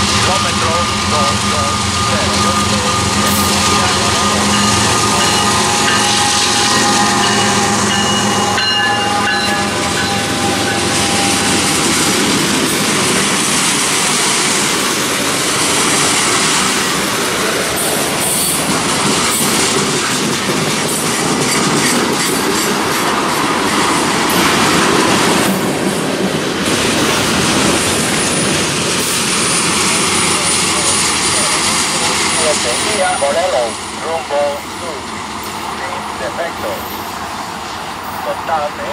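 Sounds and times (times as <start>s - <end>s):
high wheel squeal: 0.0s - 13.1s
train wheels clattering over rails: 0.0s - 38.9s.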